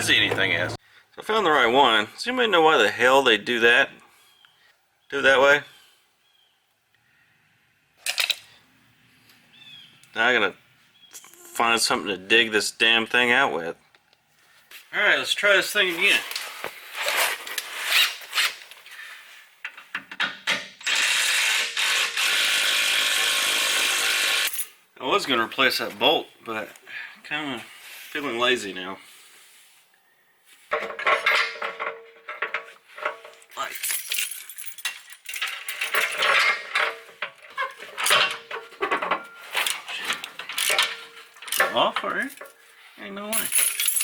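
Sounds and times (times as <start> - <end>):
power drill motor whine: 20.8 - 24.5
metal clicks and clinks: 30.8 - 42.6.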